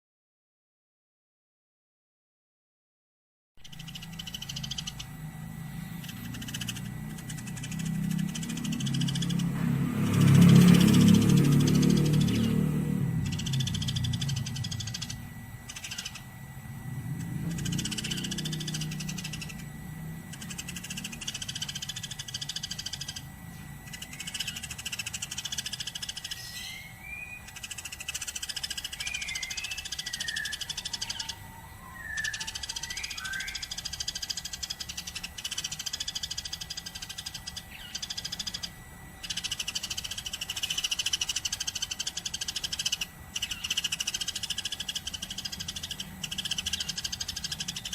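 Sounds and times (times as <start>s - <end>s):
low sliding bird notes: 3.6s - 47.9s
sparrows chirping: 3.6s - 47.9s.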